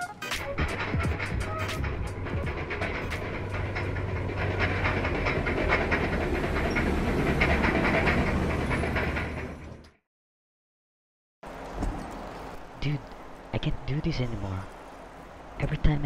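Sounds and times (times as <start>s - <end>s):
machinery humming: 0.0s - 9.9s.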